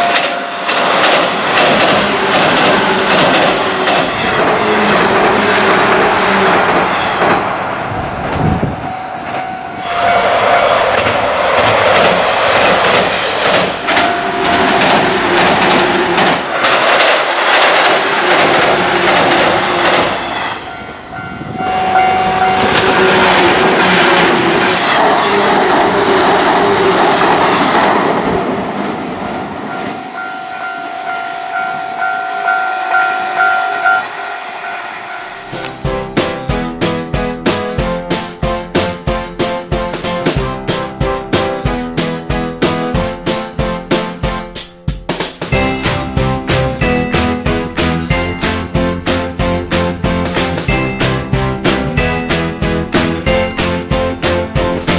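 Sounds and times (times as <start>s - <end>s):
train wheels clattering over rail joints: 0.0s - 7.5s, 10.9s - 20.5s
train motor hum: 0.0s - 9.8s, 10.8s - 27.5s.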